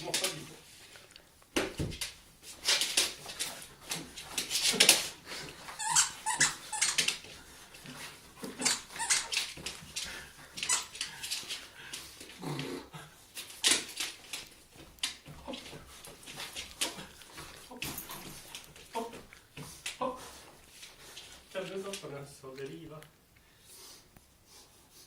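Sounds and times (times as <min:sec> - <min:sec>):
dog whining and yipping: 0:05.8 - 0:07.0.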